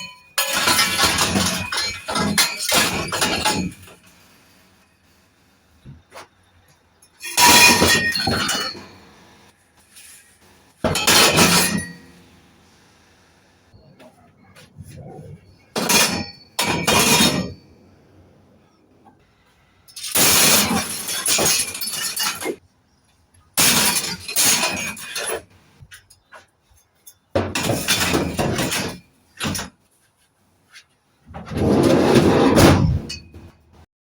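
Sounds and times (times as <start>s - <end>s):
scrap pieces clattering: 0.0s - 4.0s, 20.0s - 22.6s.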